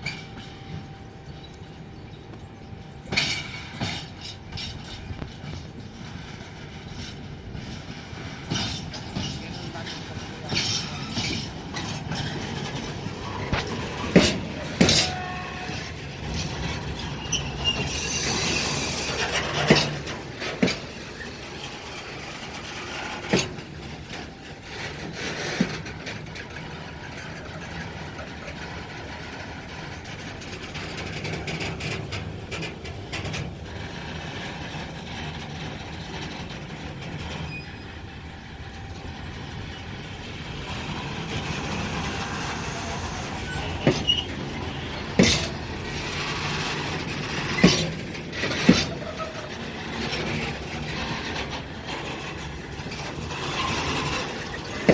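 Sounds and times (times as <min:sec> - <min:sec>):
train rumbling on tracks: 0:00.0 - 0:54.9
wheel clanks over rail joints: 0:00.0 - 0:54.9.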